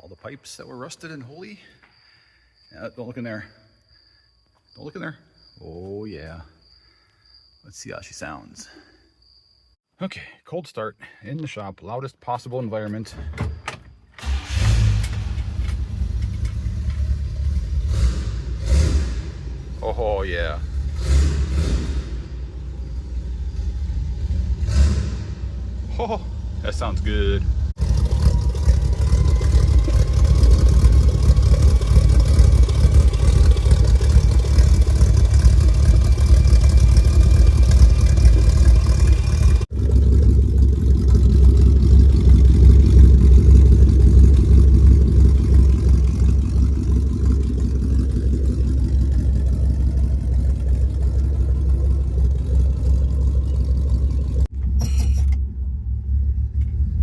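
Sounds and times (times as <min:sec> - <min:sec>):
deep loud exhaust rumble: 0:14.2 - 0:57.0.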